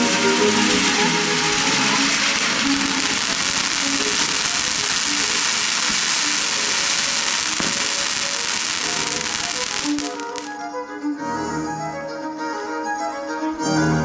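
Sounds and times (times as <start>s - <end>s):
fireworks crackling: 0.0s - 10.6s.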